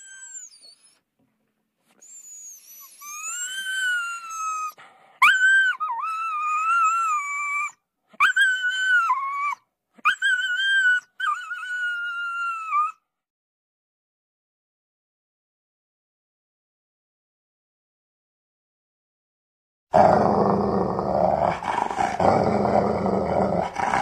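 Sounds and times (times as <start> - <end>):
cartoon animal whining calls: 0.0 - 0.8, 2.4 - 13.0.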